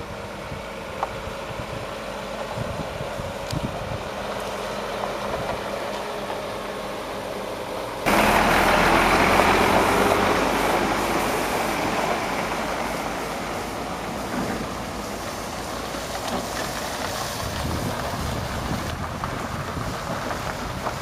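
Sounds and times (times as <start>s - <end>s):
vehicle engine running: 0.0s - 21.0s
loud rushing noise: 8.1s - 15.8s.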